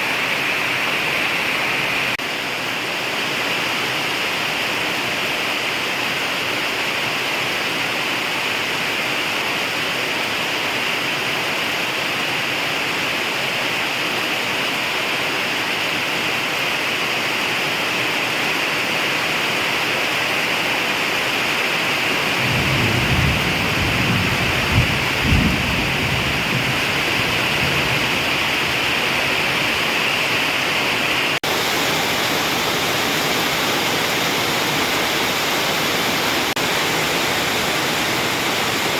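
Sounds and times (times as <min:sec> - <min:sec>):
heavy rain pouring: 0:00.0 - 0:38.9
thunder rumbling: 0:22.2 - 0:38.9.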